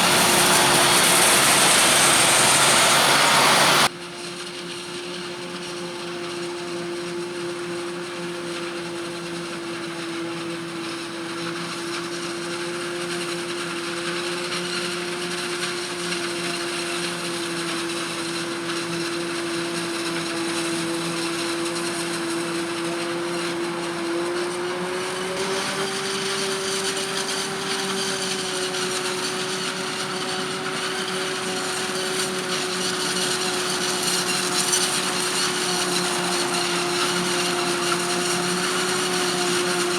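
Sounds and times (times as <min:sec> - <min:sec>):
harvest machinery whining: 0:00.0 - 0:03.9, 0:16.7 - 0:39.9.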